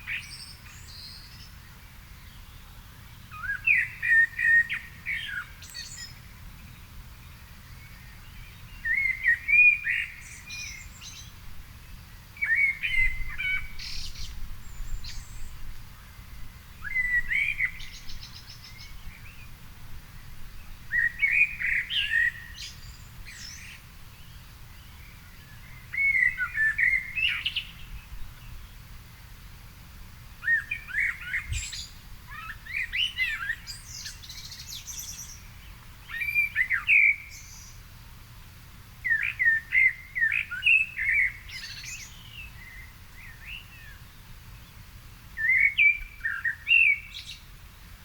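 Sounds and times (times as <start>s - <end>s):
songbird warbling: 20.6s - 28.5s.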